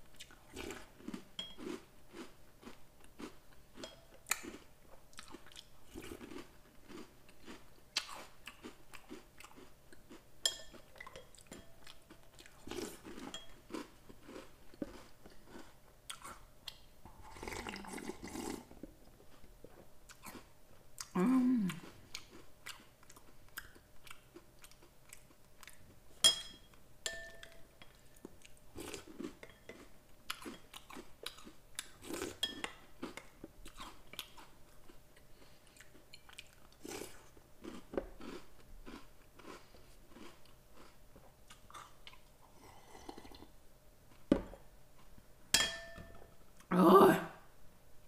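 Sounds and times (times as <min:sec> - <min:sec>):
crunchy cereal chewing: 0:00.2 - 0:03.5, 0:04.3 - 0:10.2, 0:11.5 - 0:16.5, 0:33.0 - 0:43.5
spoon knocking ceramic bowl: 0:26.2 - 0:27.6, 0:45.6 - 0:46.2.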